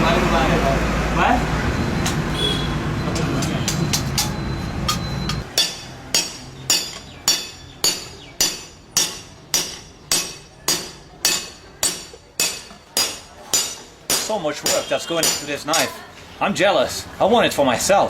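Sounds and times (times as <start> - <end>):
hammer striking metal on anvil: 3.2 - 15.9.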